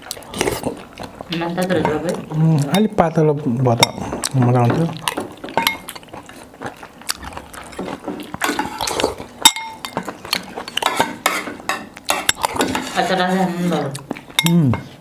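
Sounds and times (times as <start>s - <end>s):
cutlery clinking on dishes: 3.8s - 6.1s, 7.6s - 13.1s, 14.3s - 15.0s.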